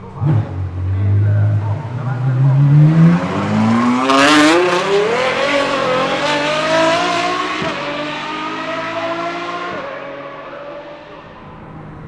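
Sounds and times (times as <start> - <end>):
car engine revving high: 11.2 - 12.0.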